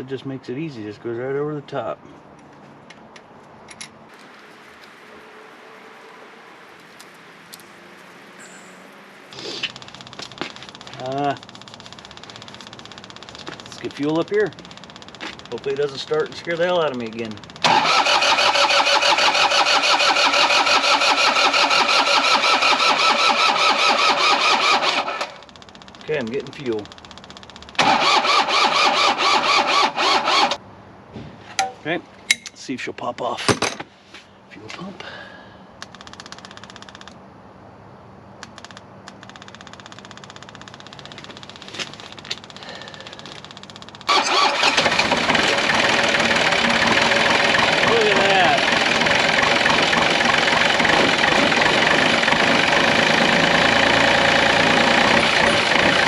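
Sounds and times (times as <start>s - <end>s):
diesel engine cranking: 3.0s - 30.6s, 35.8s - 37.2s, 38.4s - 56.0s
fuel pump ticking: 9.6s - 30.4s, 40.0s - 56.0s.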